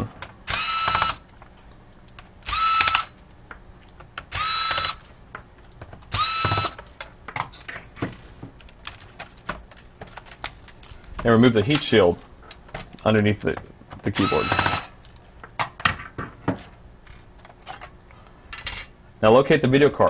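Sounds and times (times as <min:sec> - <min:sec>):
electric screwdriver whirring: 0:00.5 - 0:01.3, 0:02.4 - 0:03.2, 0:04.2 - 0:05.1, 0:06.1 - 0:06.8, 0:14.2 - 0:14.9.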